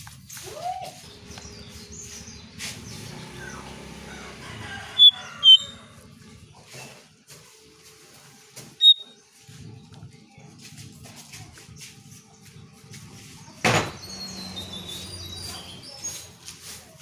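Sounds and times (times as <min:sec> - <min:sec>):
bird high chirps: 0:00.9 - 0:03.9, 0:04.9 - 0:05.9, 0:08.8 - 0:09.2, 0:13.9 - 0:16.5
bird calling thin notes: 0:05.0 - 0:05.8, 0:08.8 - 0:09.2.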